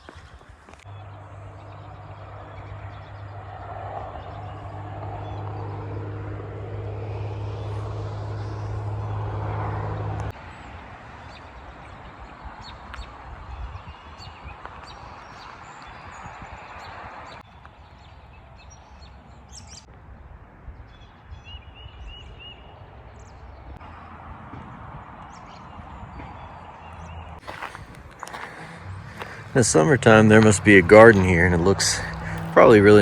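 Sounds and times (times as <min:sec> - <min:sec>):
road noise: 0:00.0 - 0:33.0
vehicle engine hum: 0:00.7 - 0:13.4, 0:23.0 - 0:33.0.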